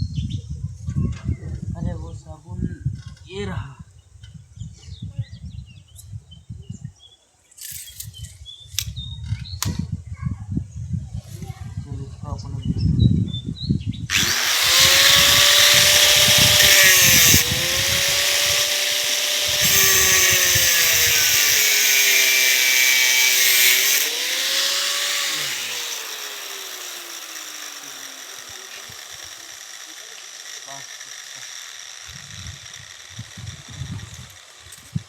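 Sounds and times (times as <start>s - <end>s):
power cutter grinding steel: 14.1s - 35.0s.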